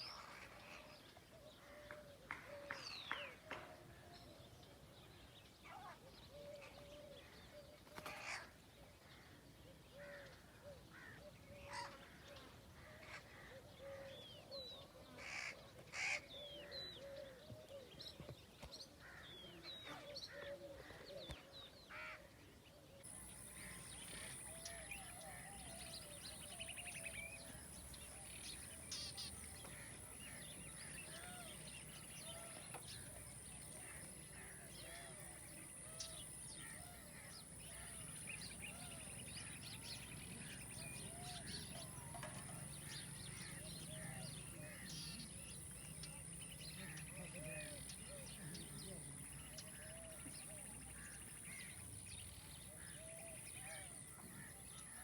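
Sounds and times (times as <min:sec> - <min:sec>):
faint outdoor background: 0:00.0 - 0:55.0
crows cawing: 0:15.2 - 0:16.3
birds chirping: 0:23.0 - 0:55.0.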